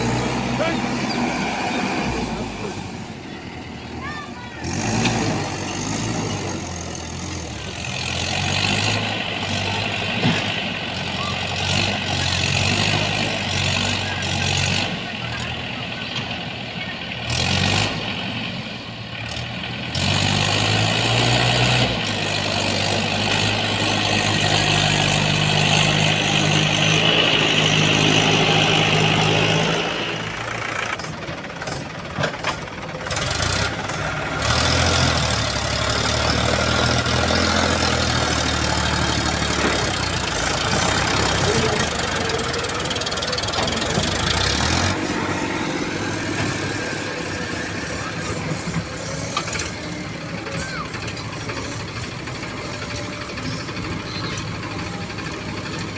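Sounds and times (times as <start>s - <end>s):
heavy diesel engine revving: 0.0s - 55.9s.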